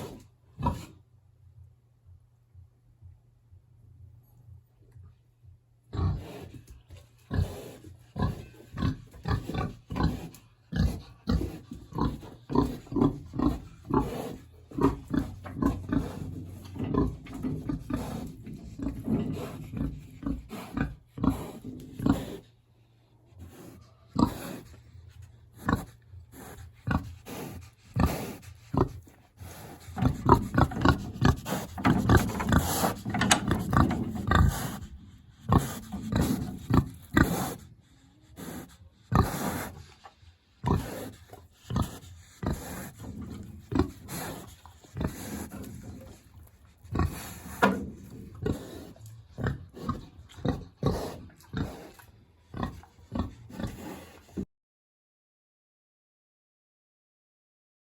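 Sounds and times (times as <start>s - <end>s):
pig grunting: 0.0s - 1.0s, 5.9s - 22.6s, 23.3s - 54.5s.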